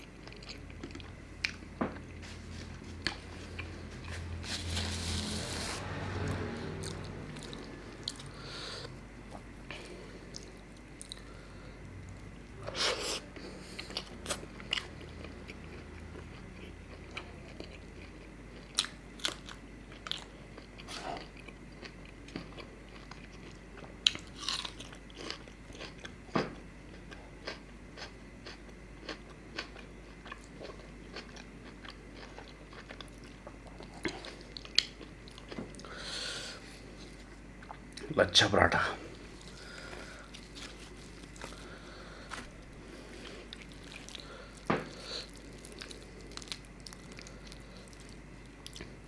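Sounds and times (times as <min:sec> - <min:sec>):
chewing with mouth clicks and smacks: 0:13.7 - 0:36.0, 0:43.2 - 0:49.0.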